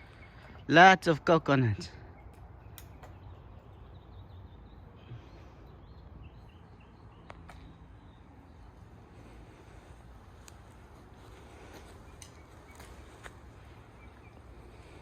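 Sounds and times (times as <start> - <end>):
faint bird chirps: 0.0 - 0.8, 11.5 - 15.0
faint sharp clicks: 2.3 - 3.2, 12.1 - 12.9.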